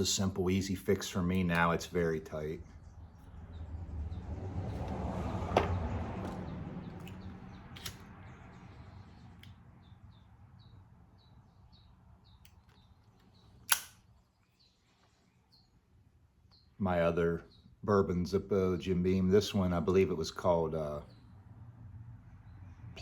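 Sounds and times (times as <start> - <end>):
small bird chirping: 6.3 - 16.8
sharp click: 7.8 - 8.1, 13.7 - 14.1.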